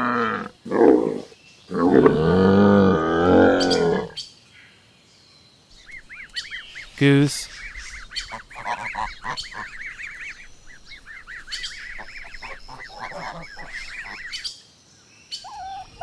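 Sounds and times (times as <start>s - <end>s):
geese honking: 6.1s - 14.4s.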